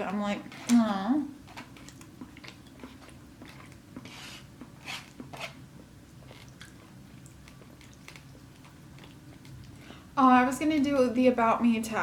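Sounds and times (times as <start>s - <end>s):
person chewing food: 1.4s - 10.1s.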